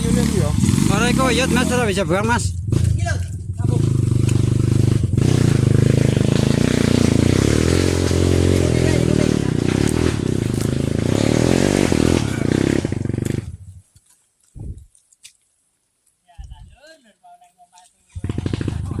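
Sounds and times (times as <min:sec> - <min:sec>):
motorcycle engine revving: 0:00.0 - 0:13.8, 0:18.1 - 0:19.0.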